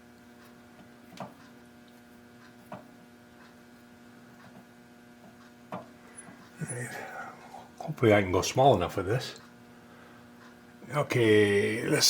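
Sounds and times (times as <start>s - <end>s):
faint machine hum: 0.0s - 12.0s.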